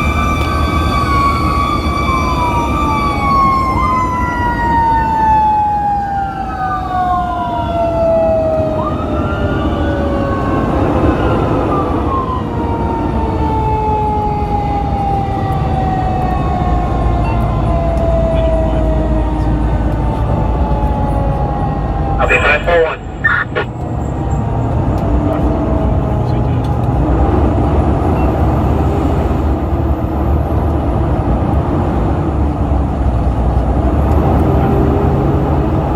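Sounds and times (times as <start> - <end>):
second siren rising and falling: 0.0 - 23.7
fire truck siren falling: 0.0 - 26.0
road rumble: 0.0 - 35.9.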